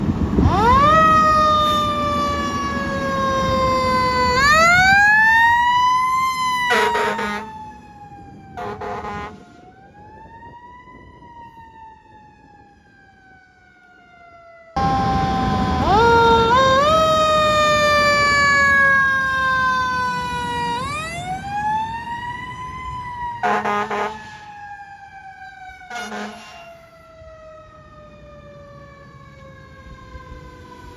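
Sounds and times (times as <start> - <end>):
fire engine siren wailing: 0.0 - 30.9
horn blasts: 6.7 - 7.5, 8.6 - 9.4, 23.4 - 24.4, 25.9 - 26.9.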